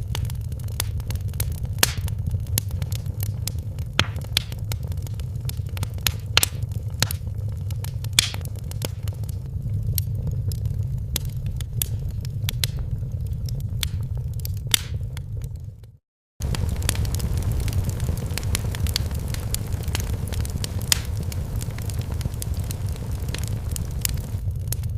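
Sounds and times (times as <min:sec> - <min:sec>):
wood fire crackling: 0:00.0 - 0:24.9.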